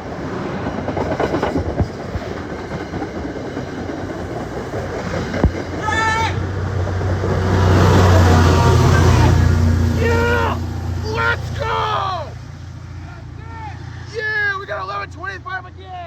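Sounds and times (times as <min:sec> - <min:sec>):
diesel locomotive engine drone: 0:00.0 - 0:16.0
train cars rumbling: 0:00.0 - 0:16.0
wheels clicking over rail joints: 0:00.6 - 0:08.4
high-pitched shout: 0:05.8 - 0:06.4, 0:10.0 - 0:12.3.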